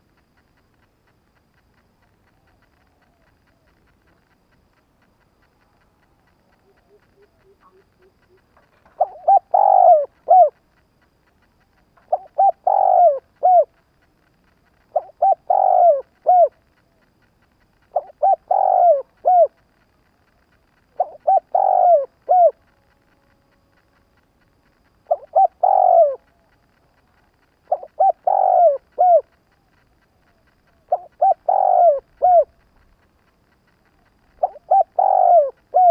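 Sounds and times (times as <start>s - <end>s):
dove cooing: 6.1s - 10.8s, 11.4s - 23.9s, 24.6s - 33.0s, 33.7s - 35.9s.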